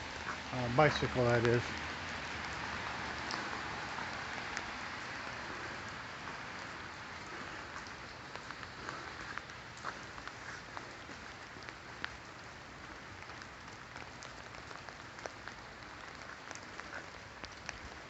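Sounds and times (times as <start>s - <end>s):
raindrops ticking close: 0.0s - 18.0s
steady rain falling: 0.0s - 18.0s.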